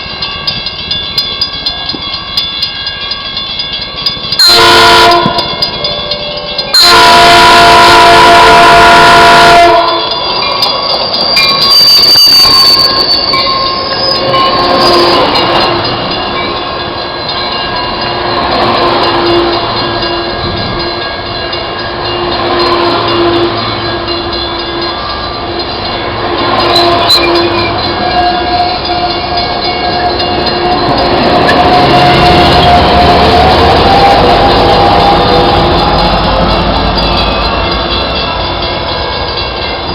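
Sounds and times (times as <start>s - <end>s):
train rumbling past: 0.0s - 39.9s
train horn blast: 4.4s - 5.6s, 6.7s - 10.2s, 22.2s - 36.0s
wheel squeal: 10.9s - 15.4s, 26.6s - 29.1s.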